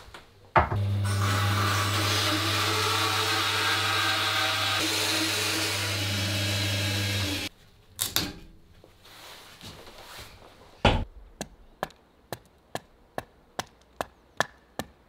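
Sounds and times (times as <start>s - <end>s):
power tool motor humming: 0.8s - 7.5s.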